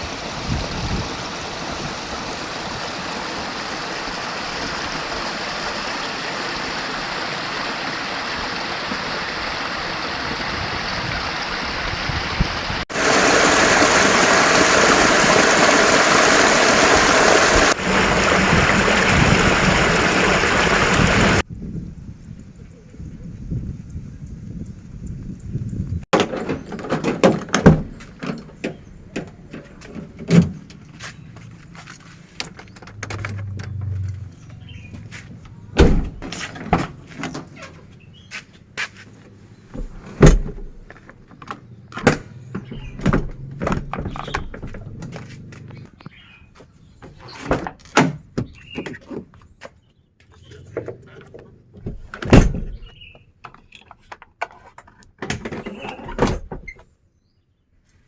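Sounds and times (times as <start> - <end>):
doors knocking and thudding: 26.1 - 30.7, 35.8 - 37.5, 39.8 - 41.0, 42.0 - 45.2, 51.8 - 53.0.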